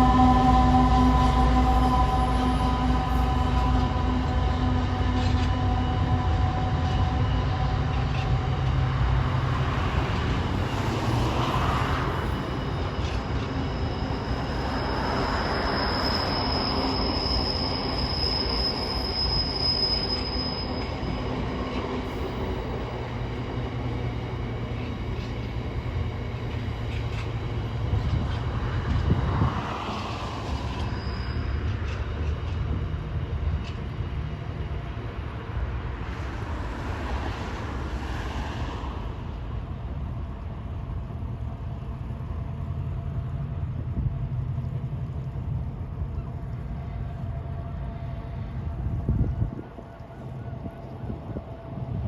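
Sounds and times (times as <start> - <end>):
high wheel squeal: 0.0 - 9.0, 10.6 - 23.3, 23.9 - 32.8
freight wagons rumbling past: 0.0 - 18.3.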